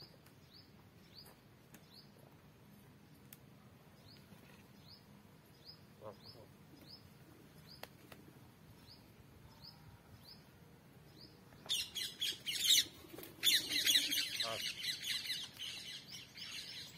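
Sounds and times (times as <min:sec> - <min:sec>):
bird chirping: 0:03.9 - 0:07.8, 0:08.7 - 0:16.9
birds calling rapidly: 0:04.0 - 0:07.9, 0:11.6 - 0:16.9.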